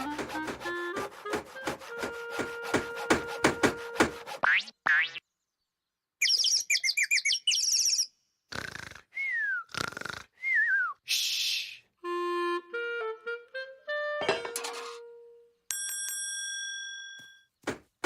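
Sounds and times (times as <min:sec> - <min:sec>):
bird-like chirping and trilling: 0:06.2 - 0:08.3.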